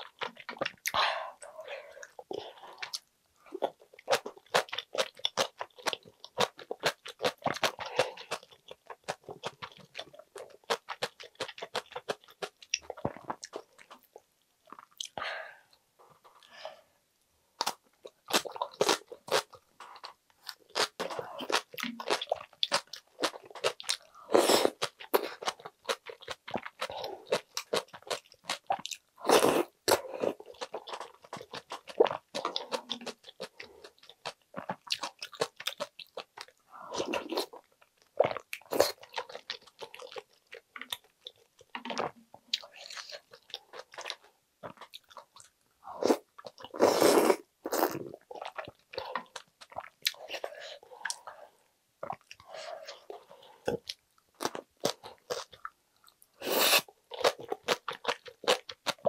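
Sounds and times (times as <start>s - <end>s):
chewing and crunching: 2.0s - 15.2s, 17.6s - 46.8s, 57.1s - 59.0s.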